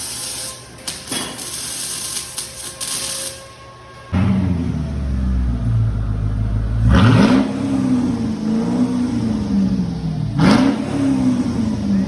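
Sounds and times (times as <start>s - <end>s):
car engine idling and revving: 4.2s - 12.0s.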